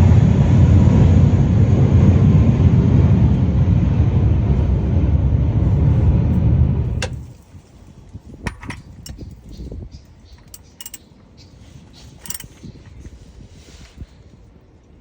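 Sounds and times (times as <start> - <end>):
metal tools clicking and clinking: 8.4 - 13.1.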